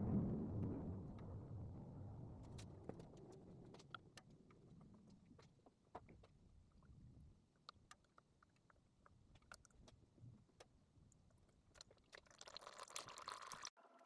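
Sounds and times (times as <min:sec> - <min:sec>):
faint low rumble: 0:00.0 - 0:05.7.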